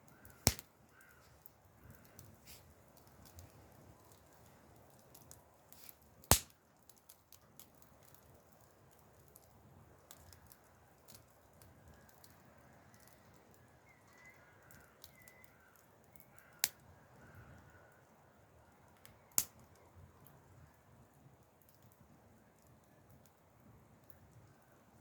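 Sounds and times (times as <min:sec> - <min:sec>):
wood fire crackling: 0:00.0 - 0:25.0
loud sharp pops of fire: 0:00.3 - 0:00.7, 0:05.8 - 0:06.6
faint bird calls: 0:13.8 - 0:18.1.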